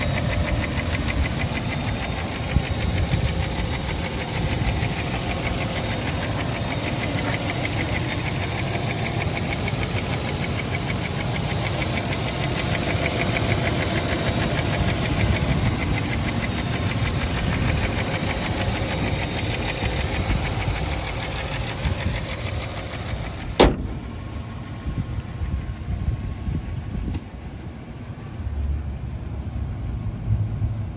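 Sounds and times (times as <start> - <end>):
pickup engine idling with ticking: 0.0 - 30.9
sharp click: 23.6 - 24.2.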